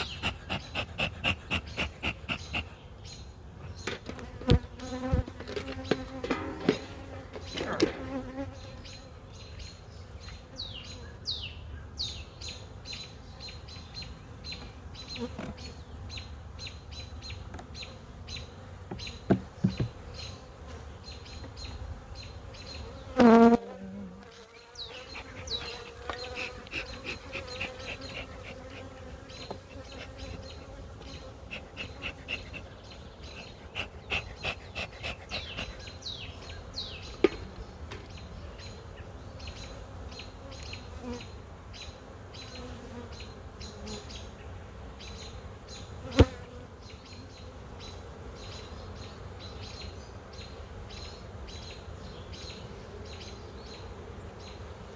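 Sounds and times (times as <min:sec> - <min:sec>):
bees buzzing: 0:00.0 - 0:09.6, 0:17.2 - 0:41.4, 0:45.0 - 0:49.5.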